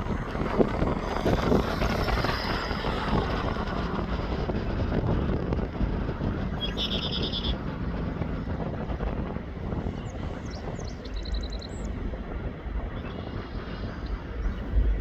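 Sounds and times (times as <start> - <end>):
freight train rumbling: 0.0 - 15.0.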